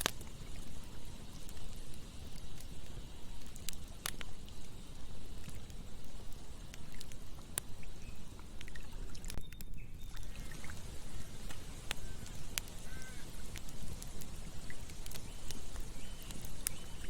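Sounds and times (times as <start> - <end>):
campfire crackling and popping: 0.0 - 17.0
bird chirps: 9.4 - 13.4, 14.6 - 17.0.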